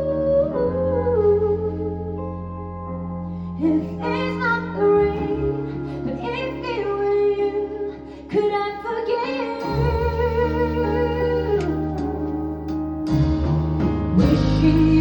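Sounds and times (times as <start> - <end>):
woman singing: 3.6 - 12.4, 14.2 - 15.0
jazz-pop band music: 8.4 - 15.0.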